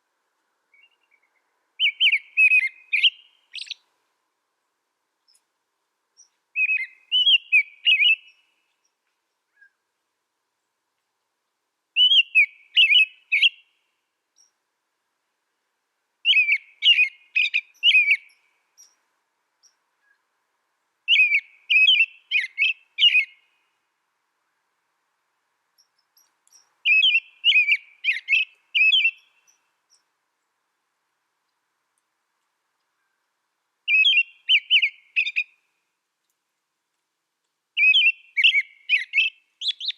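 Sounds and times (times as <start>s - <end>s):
songbird whistling: 0.7s - 3.8s, 6.2s - 8.5s, 12.0s - 13.7s, 16.2s - 19.0s, 21.1s - 23.4s, 25.8s - 30.0s, 33.9s - 35.6s, 37.8s - 39.9s.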